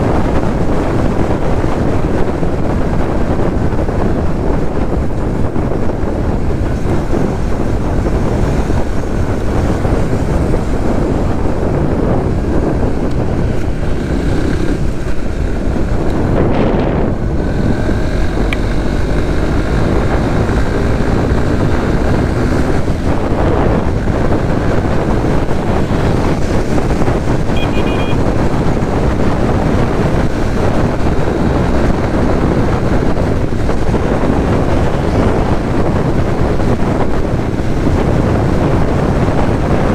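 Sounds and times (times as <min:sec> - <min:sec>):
motorcycle engine: 0:00.0 - 0:39.9
surrounding traffic: 0:00.0 - 0:39.9
wind buffeting microphone: 0:00.0 - 0:39.9
short high-pitched beep: 0:27.5 - 0:28.2.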